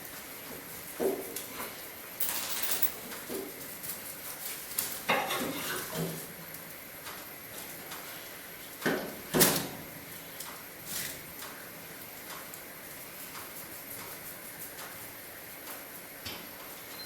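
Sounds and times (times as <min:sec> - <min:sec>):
knocks at cast-iron fireplace: 0:08.8 - 0:09.8.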